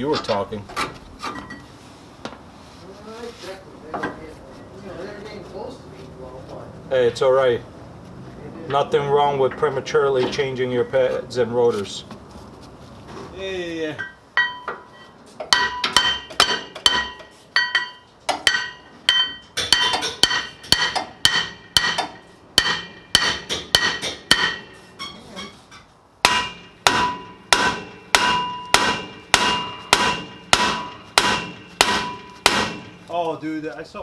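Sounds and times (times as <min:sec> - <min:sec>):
hammer striking metal: 0:14.0 - 0:14.9, 0:15.5 - 0:25.6, 0:26.2 - 0:33.2.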